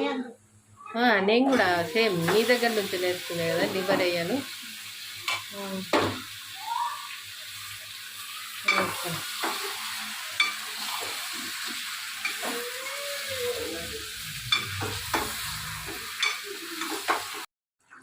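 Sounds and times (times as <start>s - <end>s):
chicken sizzling in hot oil: 1.6s - 17.5s
spoon scraping a pan: 8.6s - 12.6s, 13.2s - 17.4s.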